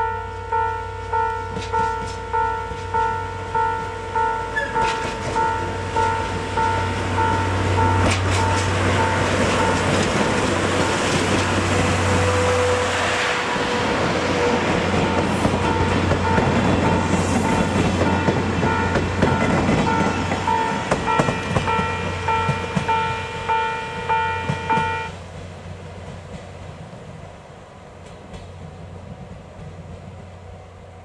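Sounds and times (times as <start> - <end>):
level-crossing warning bell: 0.0 - 12.9, 13.8 - 25.2
diesel locomotive passing: 0.0 - 31.0.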